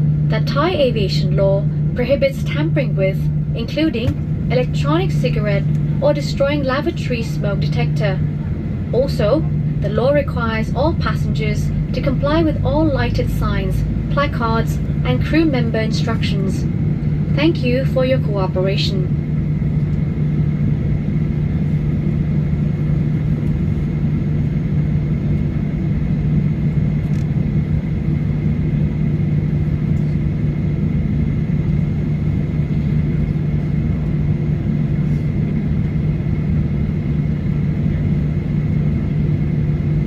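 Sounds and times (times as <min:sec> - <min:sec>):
air conditioning running: 0:00.0 - 0:40.0
airplane cabin drone: 0:00.0 - 0:40.0
constant low hum: 0:00.0 - 0:40.0.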